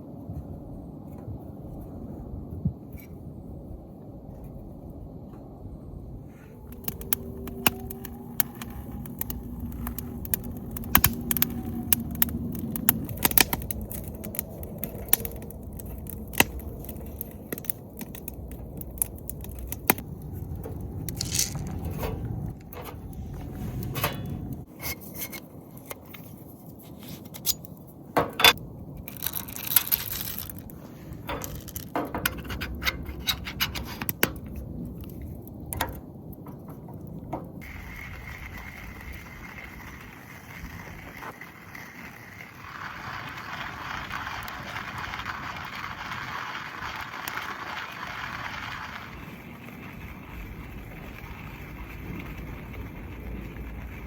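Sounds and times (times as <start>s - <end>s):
hard objects clinking and scraping: 6.6s - 25.5s, 28.4s - 34.2s.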